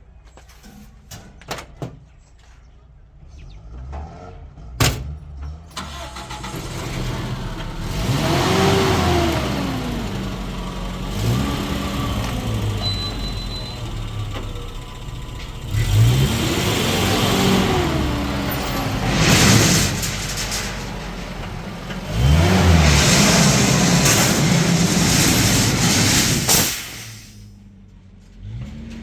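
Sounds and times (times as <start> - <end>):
vehicle engine revving: 5.8 - 13.0, 15.6 - 27.6.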